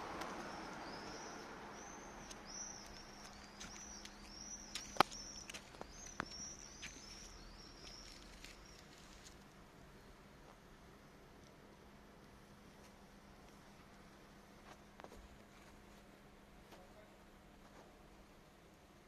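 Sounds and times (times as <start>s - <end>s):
bird chirping: 0.0s - 9.3s
soft rustling: 1.8s - 9.5s.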